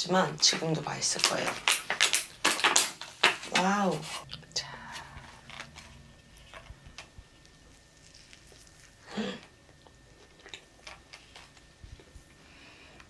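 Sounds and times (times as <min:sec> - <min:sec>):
person chewing a sandwich: 0:05.0 - 0:13.0.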